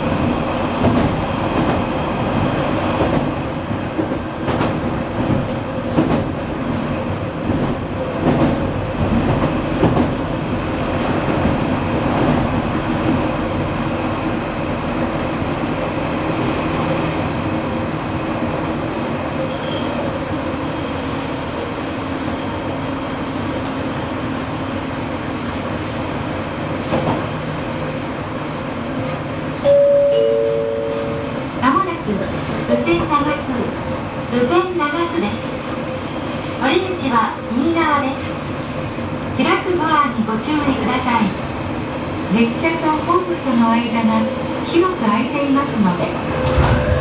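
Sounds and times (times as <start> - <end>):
train wheels rumbling on rails: 0.0 - 29.6, 30.6 - 47.0
wheels clacking over rail joints: 0.5 - 10.3.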